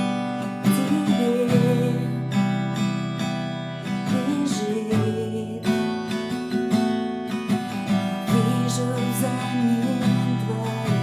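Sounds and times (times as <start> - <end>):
acoustic guitar strumming: 0.0 - 11.0
person singing: 0.5 - 2.6, 4.0 - 6.2, 8.0 - 11.0.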